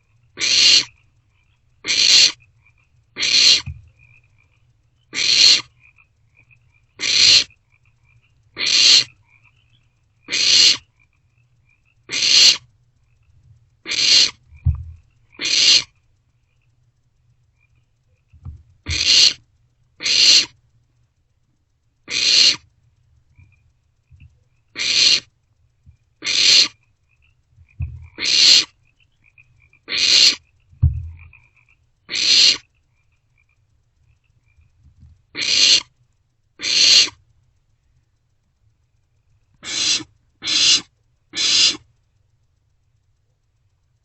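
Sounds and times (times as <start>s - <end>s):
owlets screeching: 0.4s - 1.0s, 1.8s - 2.4s, 3.2s - 3.8s, 5.1s - 5.7s, 7.0s - 7.5s, 8.6s - 10.9s, 12.1s - 12.7s, 13.9s - 14.4s, 15.4s - 16.0s, 18.9s - 19.4s, 20.0s - 20.6s, 22.1s - 22.7s, 24.8s - 25.3s, 26.2s - 26.8s, 28.0s - 28.8s, 29.8s - 30.4s, 32.1s - 32.7s, 35.4s - 35.9s, 36.6s - 37.2s, 39.6s - 41.9s
dull thumps in nest box: 30.8s - 31.3s.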